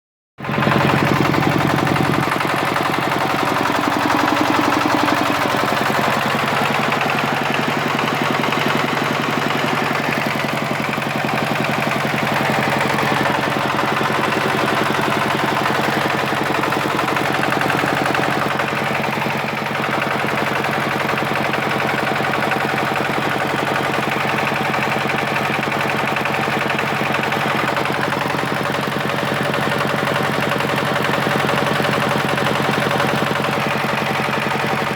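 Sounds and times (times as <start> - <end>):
diesel engine clattering: 0.4 - 34.9.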